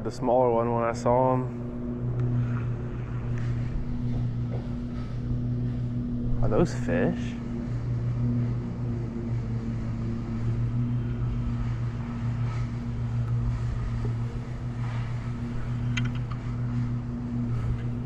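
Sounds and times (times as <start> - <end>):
boat motor humming: 0.0 - 18.0
small clicks: 15.9 - 16.4.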